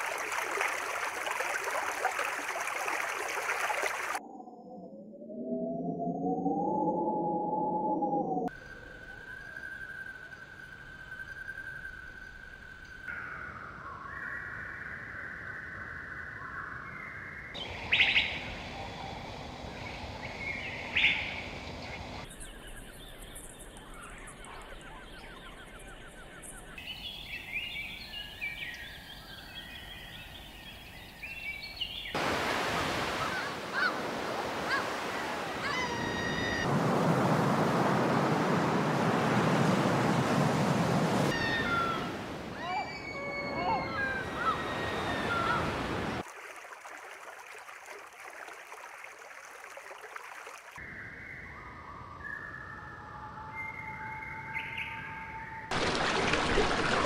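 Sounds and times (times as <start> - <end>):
bird calls and chirps: 8.9 - 32.2, 41.3 - 45.8, 50.8 - 55.7.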